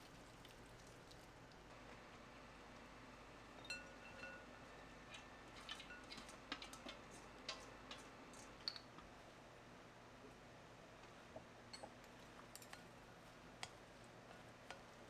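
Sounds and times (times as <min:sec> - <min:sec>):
utensils clinking against dishes: 0:03.6 - 0:04.4.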